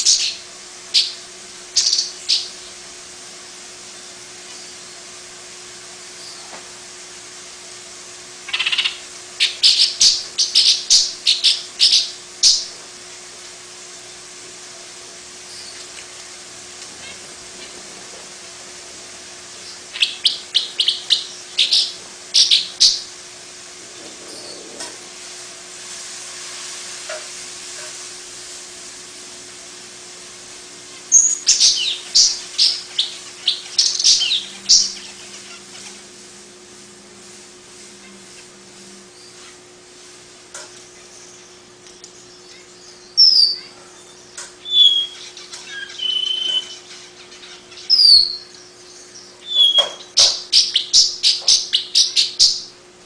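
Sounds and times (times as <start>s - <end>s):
bird chattering chirps: 0.0s - 0.4s, 1.8s - 2.8s, 8.5s - 12.7s, 19.5s - 23.1s, 31.0s - 36.1s, 42.2s - 52.7s
faint hum and hiss: 0.0s - 53.0s
bird whistled notes: 42.9s - 48.5s, 49.1s - 52.6s.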